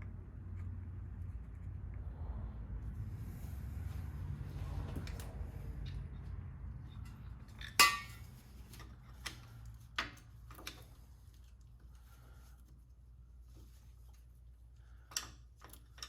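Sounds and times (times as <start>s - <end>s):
metal tools clinking: 7.0s - 8.9s.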